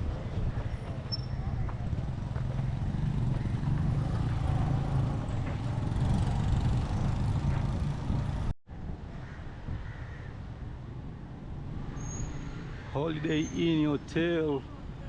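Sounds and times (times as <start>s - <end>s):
street noise: 0.0s - 15.0s
vehicle engine running: 1.5s - 8.5s.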